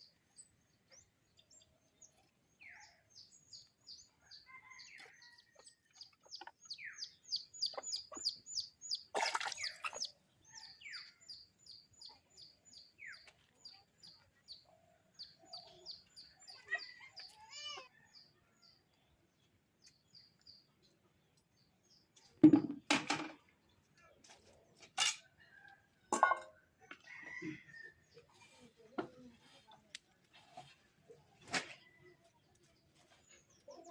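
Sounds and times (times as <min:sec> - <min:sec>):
chicken clucking: 0:04.6 - 0:08.7
sharp knocks or clatters: 0:22.4 - 0:23.4.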